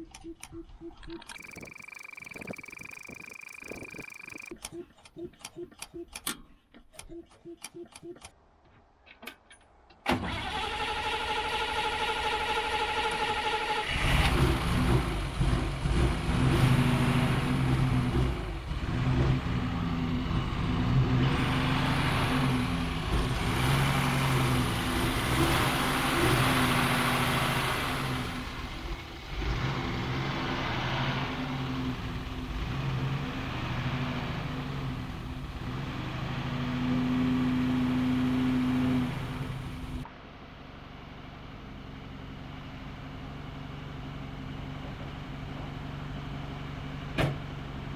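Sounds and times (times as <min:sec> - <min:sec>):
high whine: 0:01.4 - 0:04.5
truck engine revving: 0:12.6 - 0:40.0.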